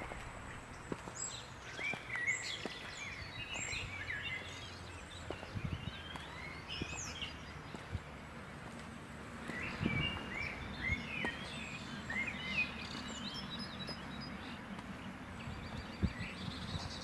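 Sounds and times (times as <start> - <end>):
low background rumble: 0.0 - 12.2
songbirds singing and chirping: 0.0 - 17.0.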